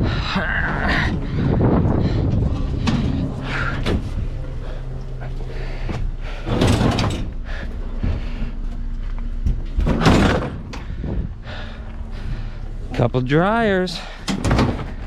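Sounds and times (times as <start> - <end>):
low engine hum: 0.0 - 15.0
sheet metal clattering and banging: 6.4 - 7.8, 9.8 - 11.0, 14.2 - 15.0.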